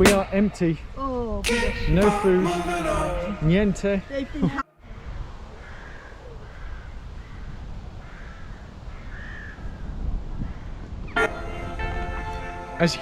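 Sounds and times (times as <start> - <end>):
crows cawing: 5.6 - 10.7.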